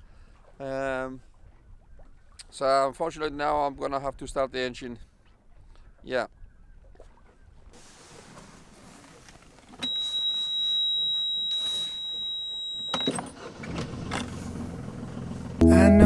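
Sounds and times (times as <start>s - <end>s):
boat engine humming: 7.8s - 16.0s
high alarm tone: 9.8s - 13.2s.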